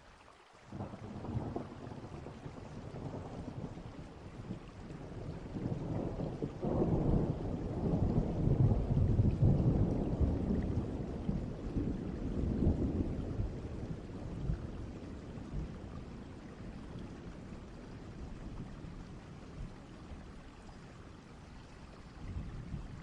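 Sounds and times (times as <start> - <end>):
steady rain: 0.0 - 23.0
distant thunder rumbling: 0.8 - 20.4.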